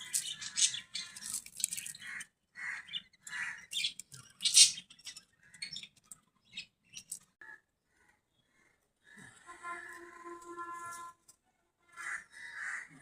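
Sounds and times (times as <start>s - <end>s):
budgerigars chirping: 0.0s - 1.2s, 1.9s - 5.9s.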